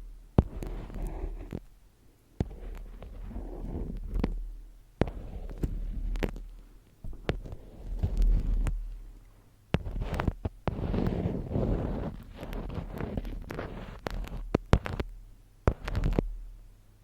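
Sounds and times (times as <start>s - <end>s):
rustling and scratching: 0.0s - 1.8s, 2.4s - 16.4s
steady low hum: 0.0s - 17.0s
sharp taps and clicks: 12.4s - 16.3s.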